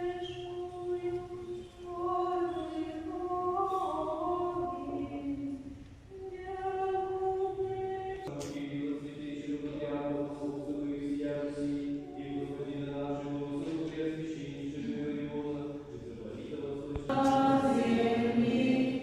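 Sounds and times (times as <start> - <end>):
choir singing chant: 6.2 - 15.9, 16.9 - 19.0.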